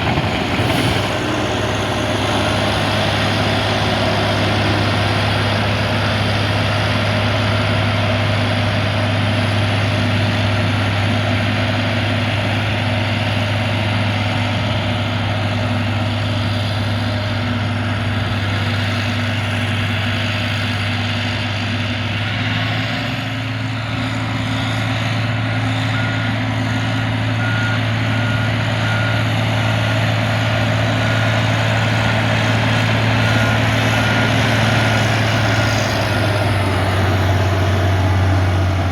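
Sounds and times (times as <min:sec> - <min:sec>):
diesel engine running: 0:00.0 - 0:38.9
reversing alarm beeping: 0:23.8 - 0:37.4.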